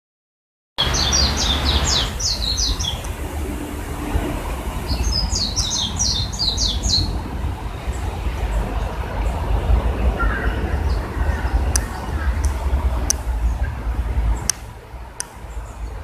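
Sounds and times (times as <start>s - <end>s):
songbird chirping: 0.8s - 3.2s, 4.8s - 7.2s
steady low rumble: 0.8s - 16.0s.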